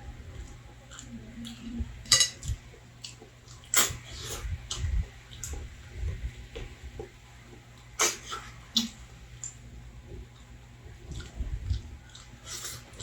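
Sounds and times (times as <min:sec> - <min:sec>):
cutlery and dishes clinking: 0:02.0 - 0:02.4.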